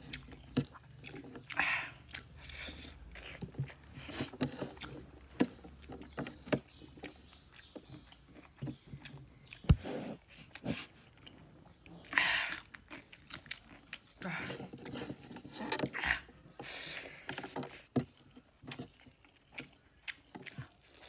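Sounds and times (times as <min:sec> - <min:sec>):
chewing and lip smacks: 0:00.0 - 0:16.3, 0:17.1 - 0:21.0
cucumber crunch: 0:00.0 - 0:16.5, 0:17.1 - 0:21.0.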